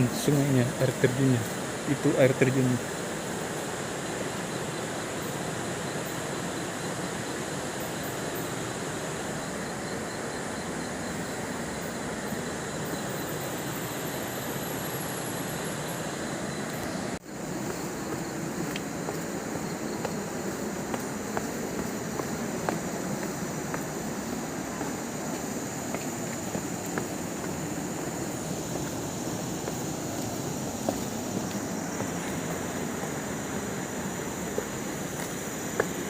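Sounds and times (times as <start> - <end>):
waterfall and river rushing: 0.0 - 36.0.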